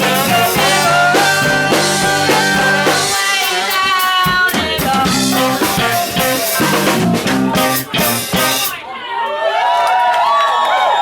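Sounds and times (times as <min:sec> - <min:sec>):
brass long notes: 0:00.0 - 0:03.8, 0:05.0 - 0:08.9
bass guitar: 0:00.0 - 0:08.8
drum kit: 0:00.0 - 0:08.9.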